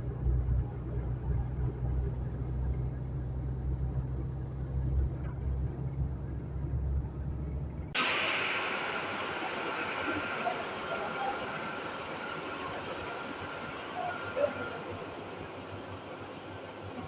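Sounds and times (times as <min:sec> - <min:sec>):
heavy truck engine droning: 0:00.0 - 0:17.0
hissing sound: 0:08.0 - 0:17.0.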